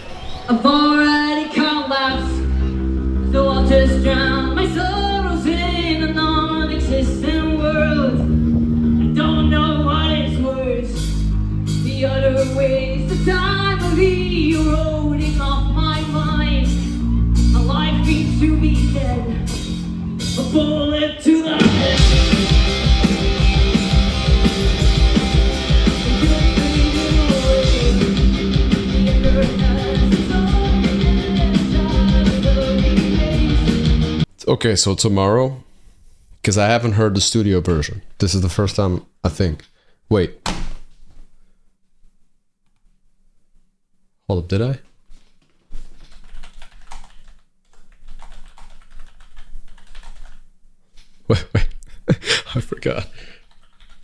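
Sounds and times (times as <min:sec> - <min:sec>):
typing on computer keyboard: 0:45.8 - 0:50.5, 0:53.4 - 0:54.0.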